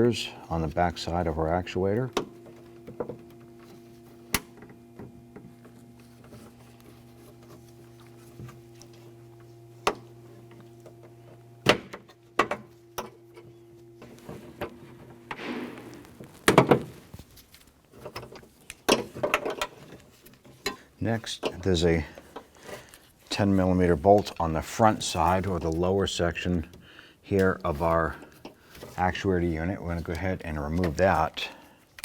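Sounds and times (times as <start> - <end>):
steady low hum: 0.0 - 18.4.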